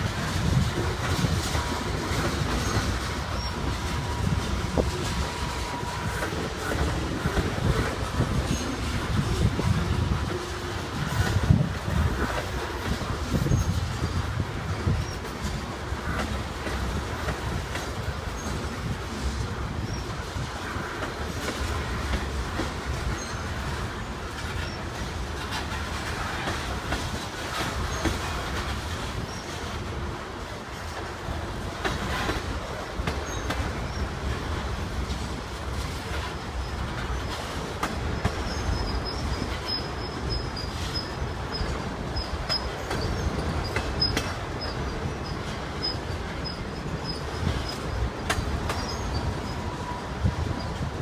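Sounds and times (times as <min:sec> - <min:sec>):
freight cars rumbling on rails: 0:00.0 - 0:51.0
faint wheel squeals: 0:36.2 - 0:50.9.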